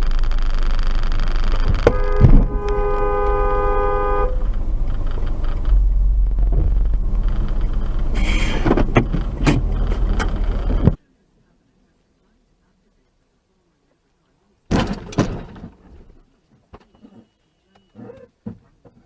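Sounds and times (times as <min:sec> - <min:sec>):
car road and engine rumble: 0:00.0 - 0:17.2
car horn blaring: 0:01.6 - 0:06.9.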